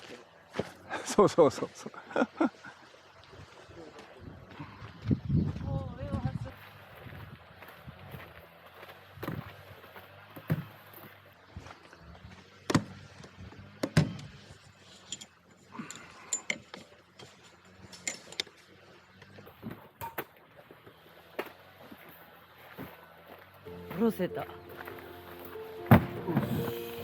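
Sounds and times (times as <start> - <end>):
camping gear knocking and rattling: 24.0 - 27.0.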